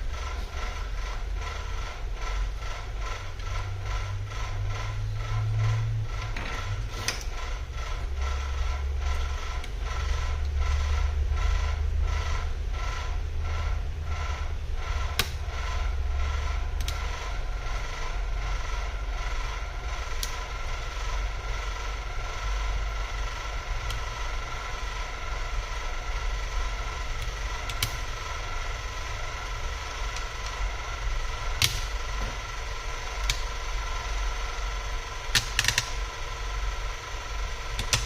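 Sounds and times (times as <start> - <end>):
small machine humming and ticking: 0.0 - 38.0
sharp clicks: 15.1 - 15.4.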